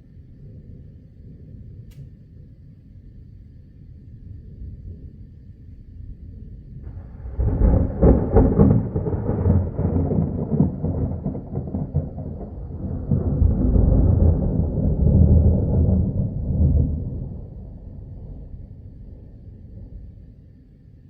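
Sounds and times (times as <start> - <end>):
thunder clap and rumble: 4.1 - 20.7.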